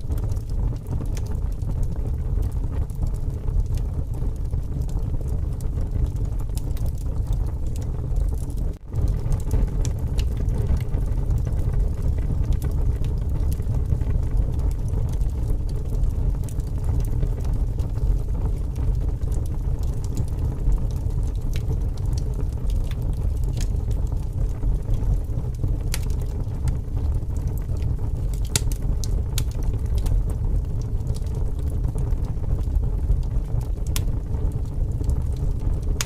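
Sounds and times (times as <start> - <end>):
wood fire crackling and popping: 0.0 - 36.0.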